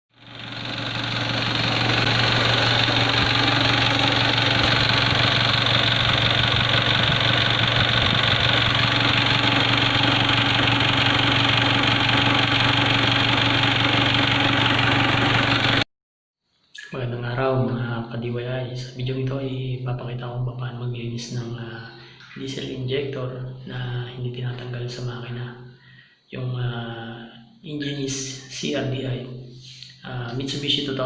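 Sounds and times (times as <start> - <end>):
diesel engine idling: 0.2 - 15.8.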